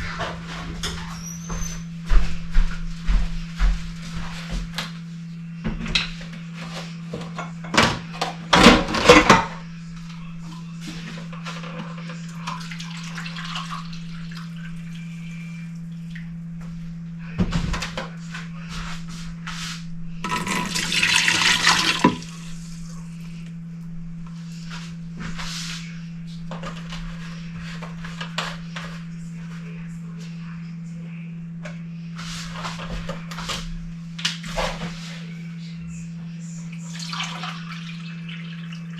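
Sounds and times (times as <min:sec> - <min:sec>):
steady low hum: 0:01.9 - 0:37.0
water running or splashing: 0:20.2 - 0:22.6.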